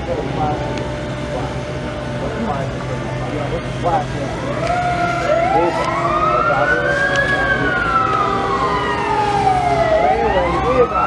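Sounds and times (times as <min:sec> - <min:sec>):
fire truck siren wailing: 0:00.0 - 0:11.0
low engine hum: 0:00.0 - 0:11.0.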